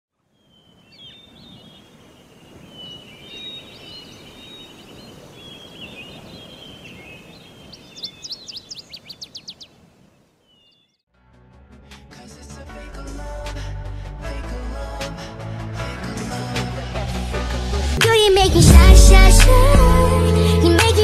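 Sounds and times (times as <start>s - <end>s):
outdoor background hiss: 0.2s - 10.9s
birds chirping and twittering: 0.2s - 11.0s.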